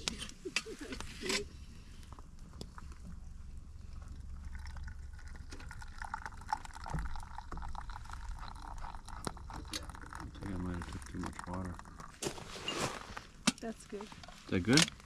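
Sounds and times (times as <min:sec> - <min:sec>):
coffee pouring into cup: 0:04.0 - 0:12.6.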